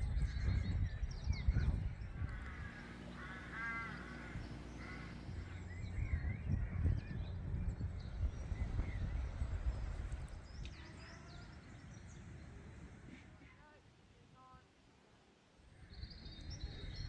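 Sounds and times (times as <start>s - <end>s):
songbirds chirping: 0.0s - 17.0s
crow cawing: 2.2s - 5.7s.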